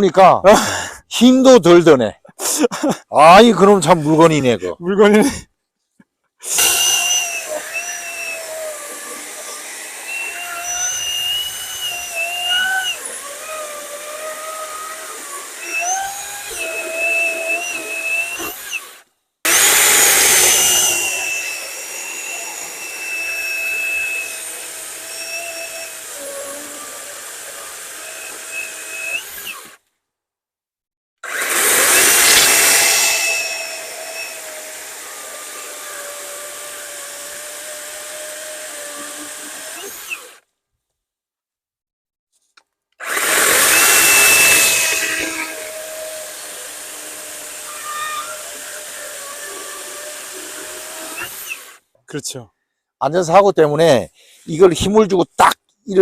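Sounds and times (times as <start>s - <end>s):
electric chainsaw cutting logs: 6.4s - 29.9s, 31.2s - 40.5s, 43.0s - 51.8s.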